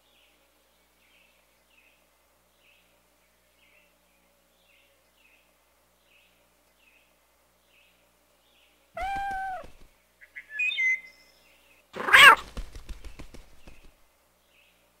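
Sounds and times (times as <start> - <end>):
bird chirping: 0.0 - 14.8
harsh cat screech: 9.0 - 9.7, 12.0 - 12.4
cartoon cat meow: 9.0 - 9.8, 12.0 - 12.4.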